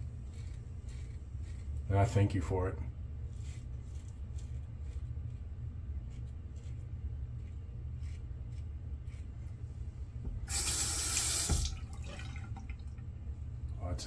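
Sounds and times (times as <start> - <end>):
water rushing from sink tap: 10.4 - 12.9.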